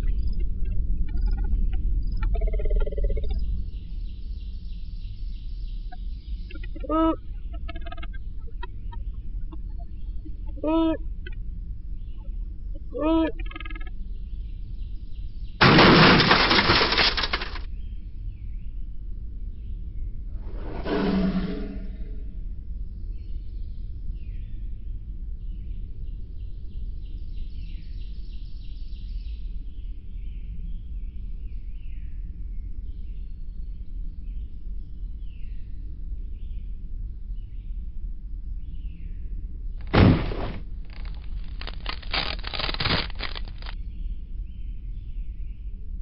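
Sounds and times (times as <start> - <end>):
steady low rumble: 0.0 - 15.8, 17.6 - 27.4
small birds chirping: 1.1 - 15.6, 40.7 - 45.8
loud thump: 39.8 - 40.7.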